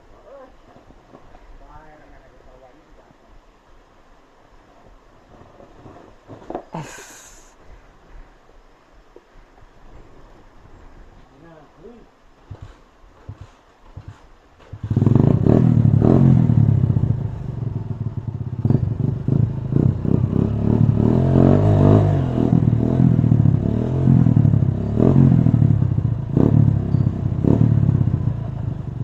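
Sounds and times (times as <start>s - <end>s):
motorcycle engine revving: 13.4s - 29.0s.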